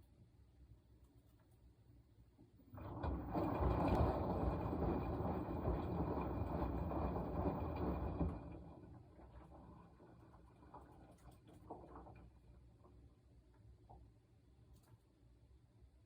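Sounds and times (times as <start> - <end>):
washing machine churning laundry: 2.6 - 14.9.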